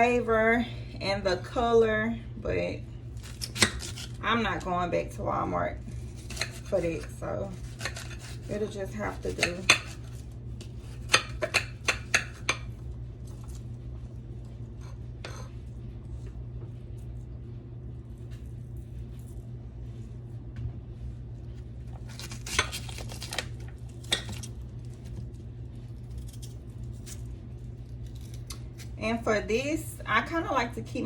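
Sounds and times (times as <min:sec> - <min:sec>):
low hum: 0:00.0 - 0:31.0
knife chopping on cutting board: 0:06.2 - 0:12.7.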